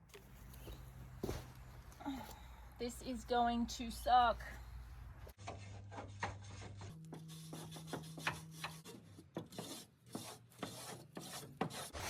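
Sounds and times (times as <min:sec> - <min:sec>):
hand scraping rusty steel: 0:04.0 - 0:12.0.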